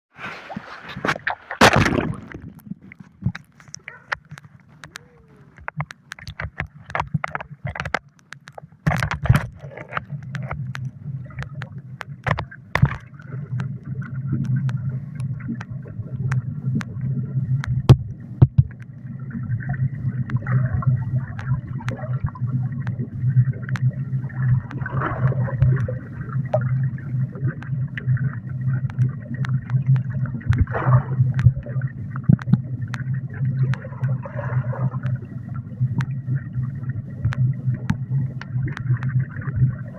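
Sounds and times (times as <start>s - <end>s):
muffled underwater pool sound: 0.1s - 39.9s
water gurgles: 0.1s - 39.9s
sharp clicks: 3.2s - 13.8s
low pulsing hum: 8.9s - 39.9s.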